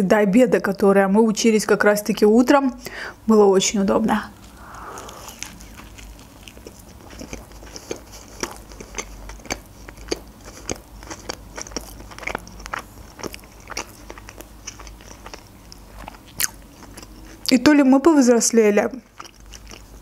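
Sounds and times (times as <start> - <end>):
chewing with wet mouth clicks: 5.4 - 17.6, 18.9 - 20.0.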